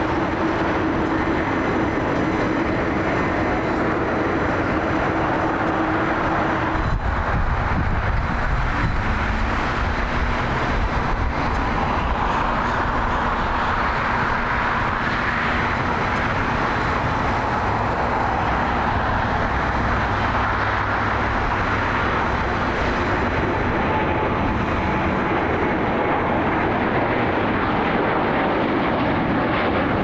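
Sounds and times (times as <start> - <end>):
jet engines running: 0.0 - 30.0.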